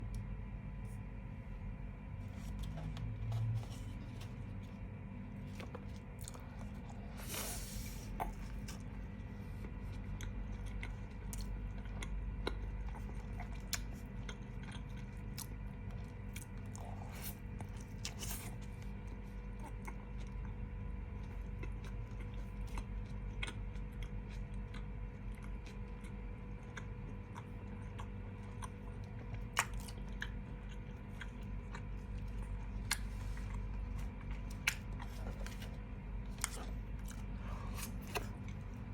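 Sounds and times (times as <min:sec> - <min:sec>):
steady low hum: 0:00.0 - 0:38.9
person chewing and crunching food: 0:02.0 - 0:38.9.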